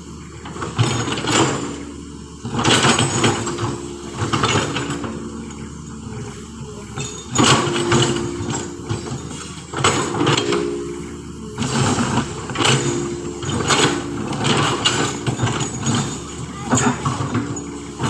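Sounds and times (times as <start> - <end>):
diesel engine revving: 0.0 - 18.0
rattling and scraping: 2.5 - 18.0.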